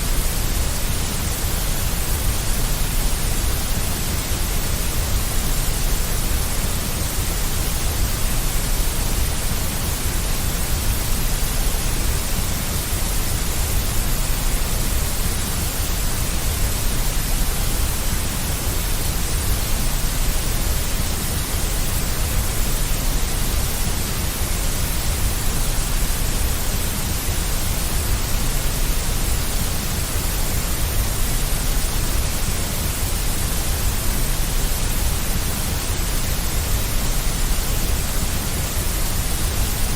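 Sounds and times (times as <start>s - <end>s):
deep white noise: 0.0s - 39.9s.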